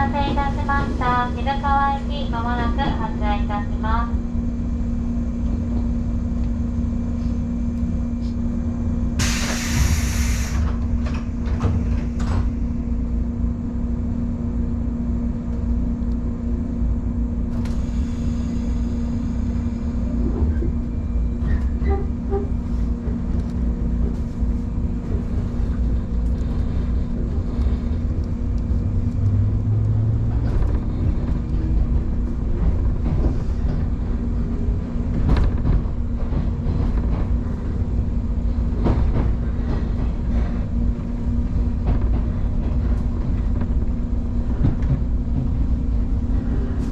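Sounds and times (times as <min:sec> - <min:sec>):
train rumble and hum: 0:00.0 - 0:46.9
air hiss: 0:09.2 - 0:10.7.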